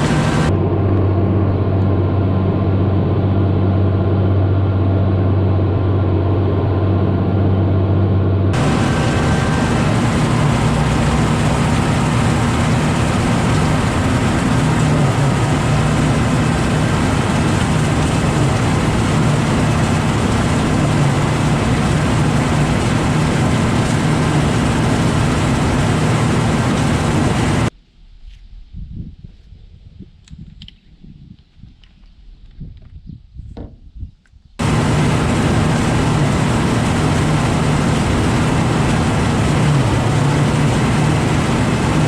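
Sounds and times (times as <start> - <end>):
tractor engine running: 0.0 - 1.6, 8.5 - 27.7, 34.6 - 42.0.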